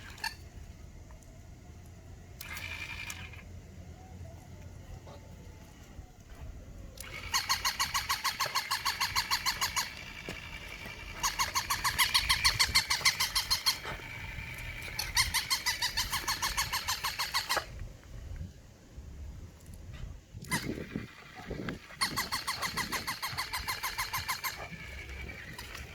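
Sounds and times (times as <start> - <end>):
toy dog high-pitched pulsing: 2.4 - 4.5, 7.0 - 17.8, 20.4 - 25.9.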